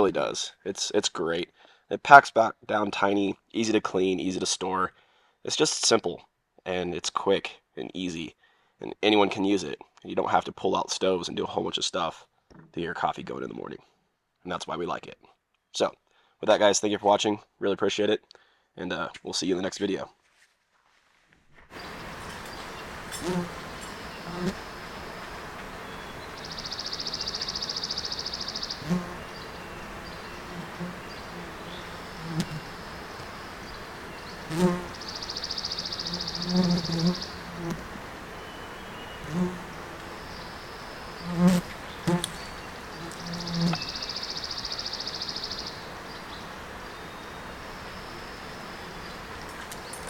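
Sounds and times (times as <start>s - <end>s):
faint outdoor background: 0.0s - 50.0s
fly buzzing: 21.8s - 46.9s
songbird high-pitched trill: 25.8s - 30.3s, 34.2s - 37.4s, 42.0s - 46.3s.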